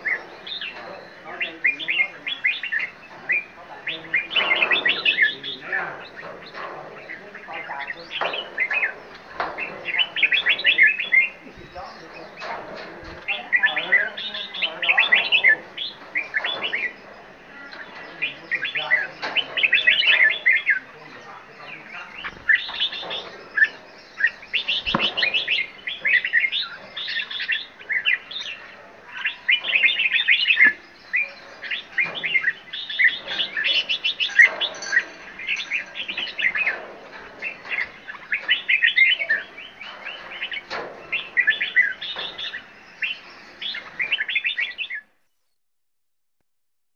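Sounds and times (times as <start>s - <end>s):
caged birds chirping: 0.0s - 45.2s
sharp knock: 24.7s - 25.6s.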